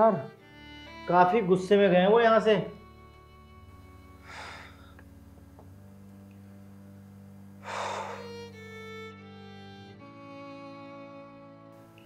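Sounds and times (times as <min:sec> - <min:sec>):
sad bowed strings: 0:00.0 - 0:12.0
short breath hiss: 0:04.2 - 0:05.1, 0:07.6 - 0:08.8.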